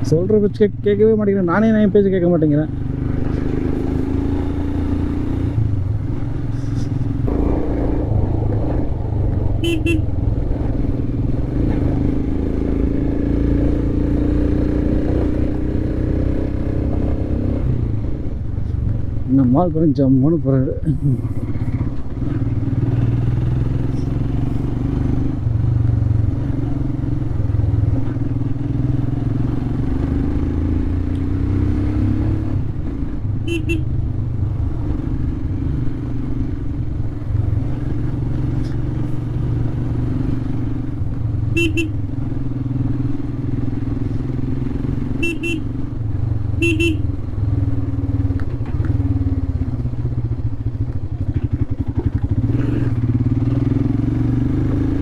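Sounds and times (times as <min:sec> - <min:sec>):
motorcycle engine running: 0:00.0 - 0:15.9, 0:40.5 - 0:55.0
short horn beeps: 0:33.5 - 0:33.9, 0:41.6 - 0:42.0, 0:45.2 - 0:45.7, 0:46.6 - 0:47.0.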